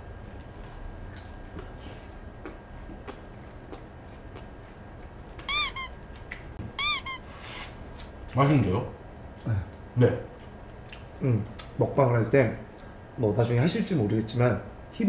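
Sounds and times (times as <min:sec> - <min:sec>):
crunchy chewing: 0:00.1 - 0:08.4
loud high squeaks: 0:05.5 - 0:05.9, 0:06.8 - 0:07.3.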